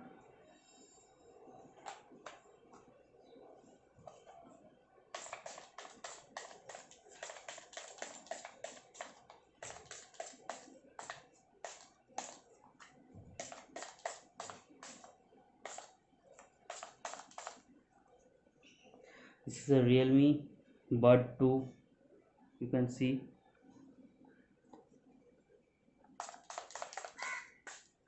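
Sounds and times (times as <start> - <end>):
spray bottle hissing squirts: 5.1 - 12.4, 13.4 - 17.6, 26.2 - 28.0.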